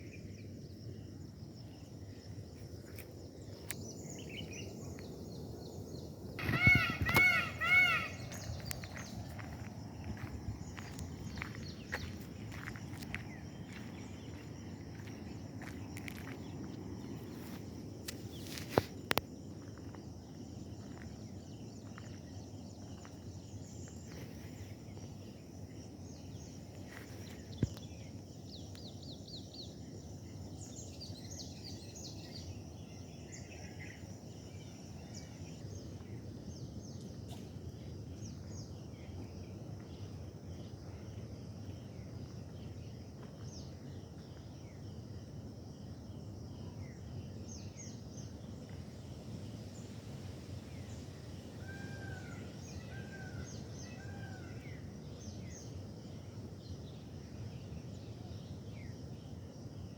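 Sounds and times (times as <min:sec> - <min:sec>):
birds chirping: 0:03.4 - 0:16.7.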